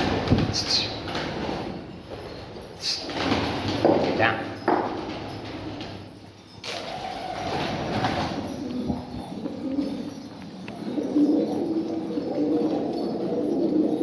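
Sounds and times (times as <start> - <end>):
pigeons cooing: 6.6 - 14.0.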